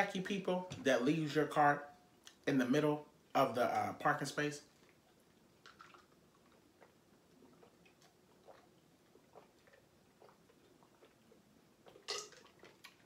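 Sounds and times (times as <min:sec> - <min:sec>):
person quietly chewing food: 0:04.7 - 0:13.0.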